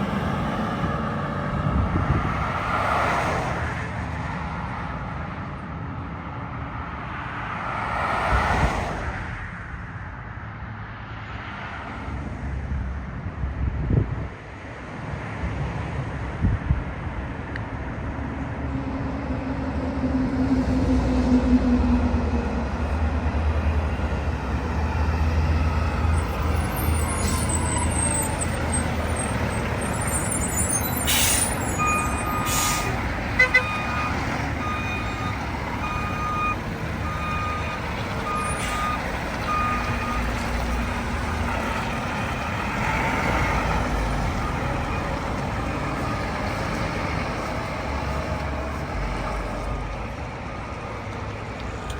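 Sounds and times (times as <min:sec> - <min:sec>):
garbage truck diesel engine rumble: 0:18.8 - 0:51.9
reversing alarm beeping: 0:29.8 - 0:40.3.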